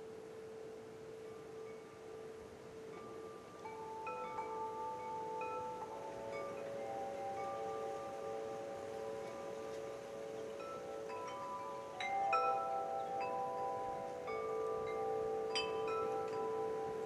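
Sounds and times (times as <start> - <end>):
wind chimes ringing: 0.0 - 17.0.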